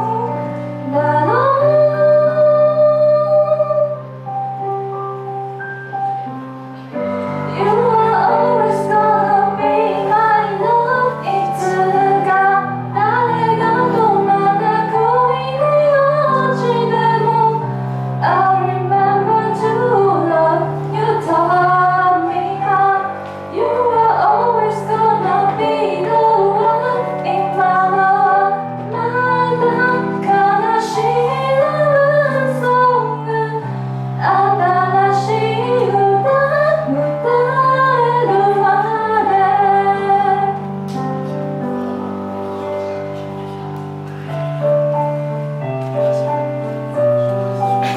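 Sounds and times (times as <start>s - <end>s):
woman singing: 0.0s - 4.0s, 7.5s - 40.7s.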